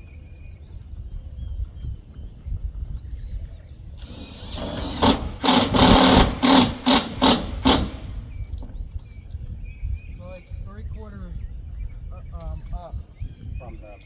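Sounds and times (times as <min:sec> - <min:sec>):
power drill running: 0:04.0 - 0:08.4.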